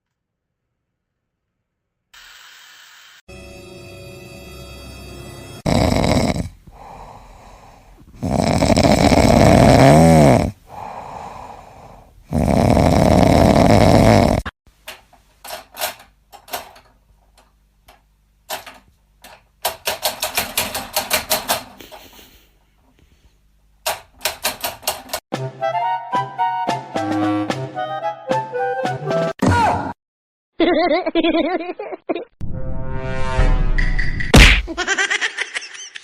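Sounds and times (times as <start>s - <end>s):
pet snoring: 5.6s - 11.5s, 12.2s - 14.5s.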